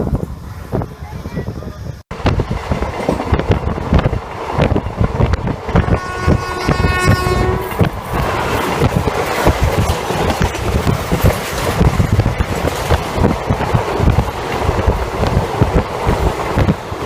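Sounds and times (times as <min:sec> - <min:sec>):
train wheels clattering over rails: 0:02.1 - 0:17.0
train horn: 0:05.7 - 0:07.9
rush of air and running noise: 0:07.5 - 0:17.0.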